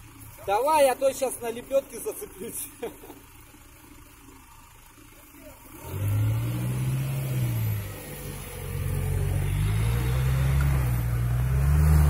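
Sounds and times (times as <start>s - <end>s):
engine revving: 5.6s - 12.0s.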